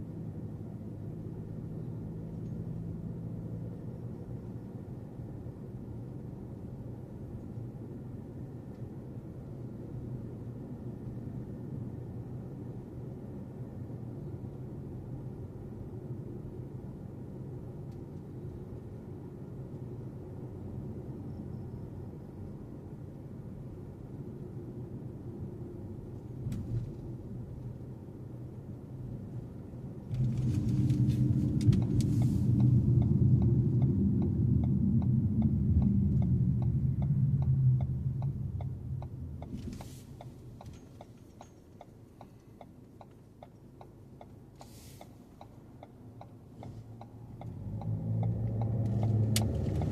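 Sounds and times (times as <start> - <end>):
road and engine rumble: 0.0 - 49.9
turn signal relay ticking: 31.5 - 49.9.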